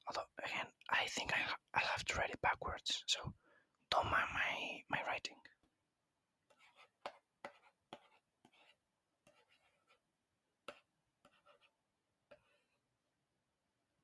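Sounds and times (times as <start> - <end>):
scratchy writing strokes: 6.4 - 12.9.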